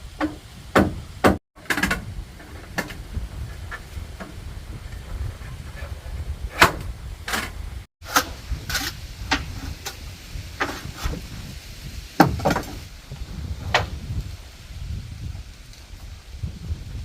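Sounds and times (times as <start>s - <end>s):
knocks and thuds: 0.2s - 2.0s, 12.2s - 12.8s.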